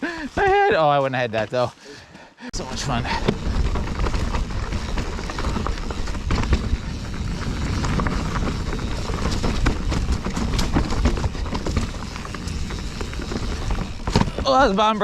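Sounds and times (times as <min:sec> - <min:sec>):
tyres rumbling on rock: 0:02.6 - 0:15.0
bike frame knocks and rattles: 0:03.0 - 0:15.0.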